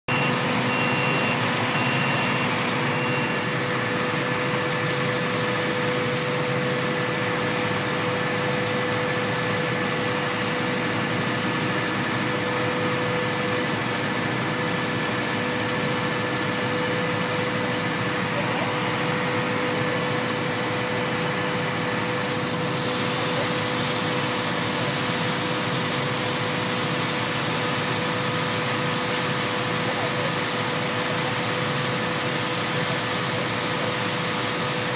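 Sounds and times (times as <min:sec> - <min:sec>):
engine running steadily: 0:00.1 - 0:34.9
brief high swish: 0:21.8 - 0:24.4.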